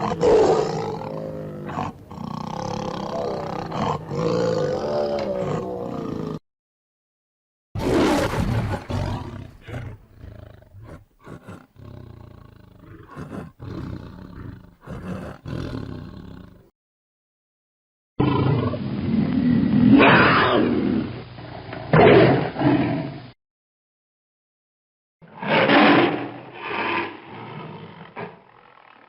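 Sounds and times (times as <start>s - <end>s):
tiger growling and roaring: 0.0s - 6.4s, 7.8s - 16.7s, 25.3s - 29.0s.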